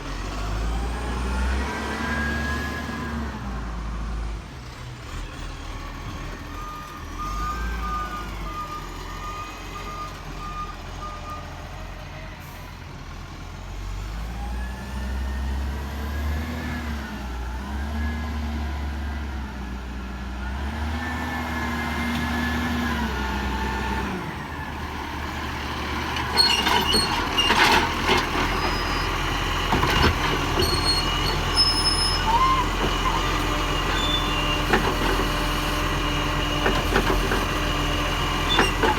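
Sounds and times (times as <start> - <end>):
reversing beeps: 6.5 - 11.5.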